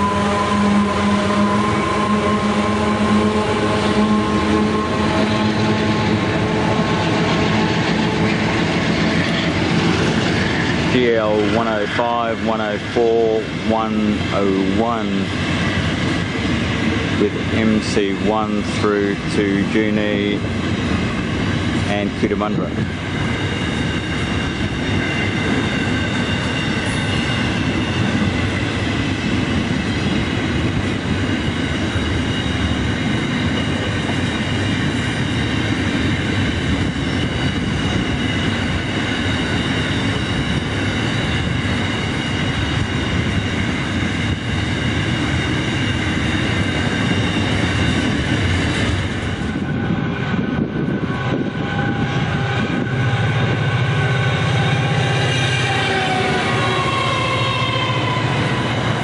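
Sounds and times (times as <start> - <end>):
approaching train: 0.0 - 59.0
steel wheels rumbling on rail: 0.0 - 59.0
high wheel squealing: 20.8 - 59.0.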